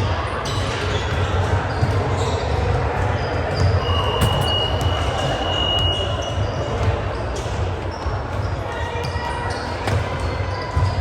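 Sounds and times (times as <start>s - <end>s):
ball bouncing: 3.5s - 5.9s
gym noise: 3.5s - 7.7s
referee's whistle blast: 3.8s - 6.3s.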